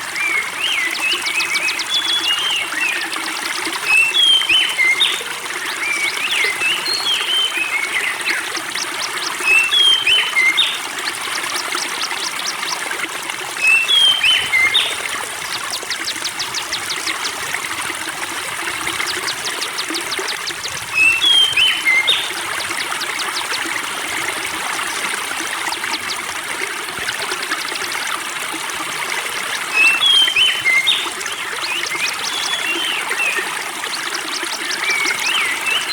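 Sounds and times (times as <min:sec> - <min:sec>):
water trickling: 0:00.0 - 0:35.9
songbird whistling and trilling: 0:03.8 - 0:12.8, 0:13.6 - 0:17.5, 0:18.8 - 0:23.6, 0:29.7 - 0:35.9.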